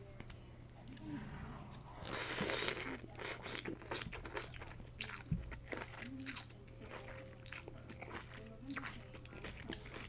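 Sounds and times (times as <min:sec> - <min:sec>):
chewing crunches and wet clicks: 0:02.1 - 0:10.0.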